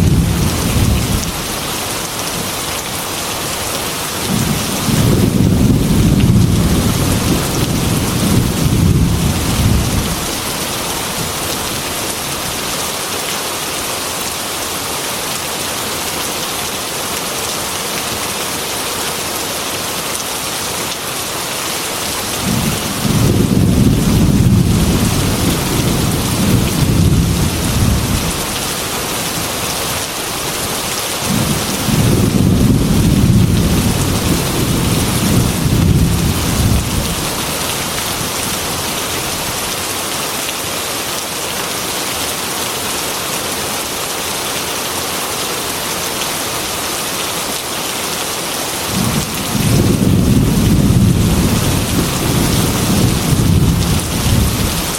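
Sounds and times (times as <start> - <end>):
thunder rumbling: 0.0 - 1.4, 4.3 - 10.5, 22.4 - 28.7, 31.3 - 38.3, 48.9 - 54.9
rain on a glass window: 0.0 - 14.6, 15.2 - 54.9.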